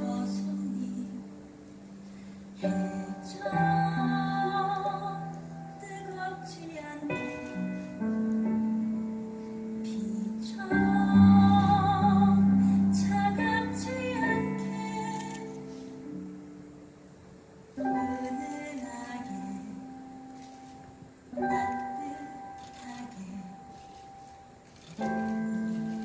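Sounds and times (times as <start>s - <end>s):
woman singing: 0.0s - 1.6s, 2.6s - 9.1s, 9.7s - 16.2s, 17.8s - 20.4s, 21.3s - 24.3s, 25.0s - 26.0s.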